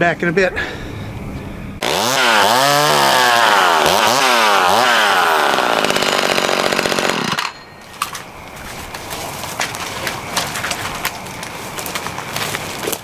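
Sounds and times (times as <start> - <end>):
chainsaw revving: 1.8 - 7.5.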